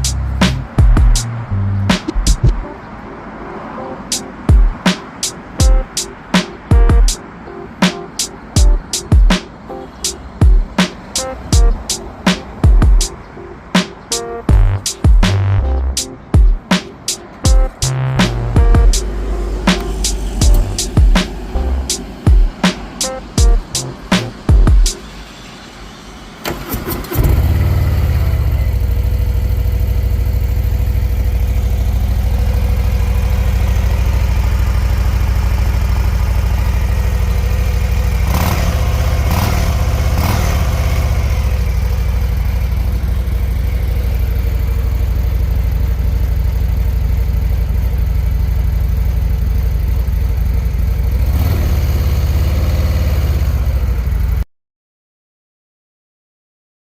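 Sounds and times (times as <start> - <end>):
motorcycle engine starting and idling: 26.4 - 54.4.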